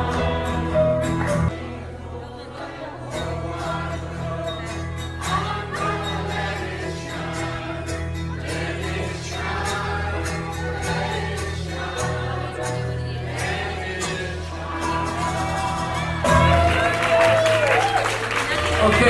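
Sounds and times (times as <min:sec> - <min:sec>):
group of people singing: 0:00.0 - 0:16.6.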